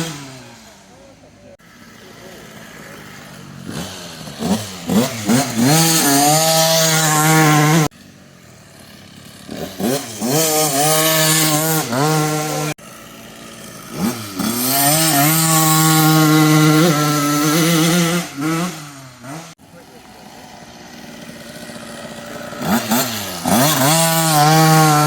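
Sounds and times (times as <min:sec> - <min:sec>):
dirt bike engine accelerating: 0:00.0 - 0:25.0.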